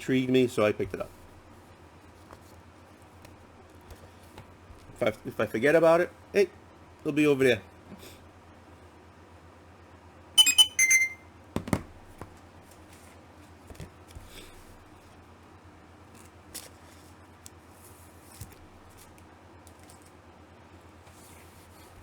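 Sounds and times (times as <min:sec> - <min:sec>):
short electronic beeps: 0:10.4 - 0:11.2.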